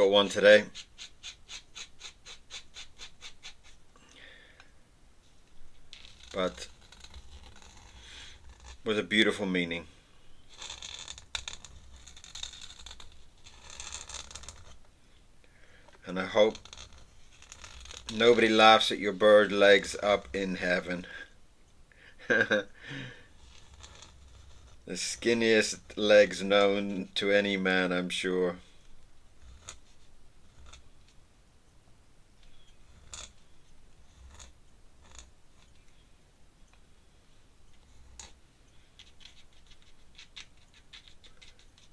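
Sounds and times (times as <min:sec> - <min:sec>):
ink pen scratching on paper: 0:00.4 - 0:03.8, 0:06.0 - 0:09.2, 0:10.4 - 0:14.8, 0:16.4 - 0:20.8, 0:23.3 - 0:26.4, 0:29.4 - 0:31.0, 0:32.4 - 0:35.7, 0:37.8 - 0:38.4, 0:39.0 - 0:41.9.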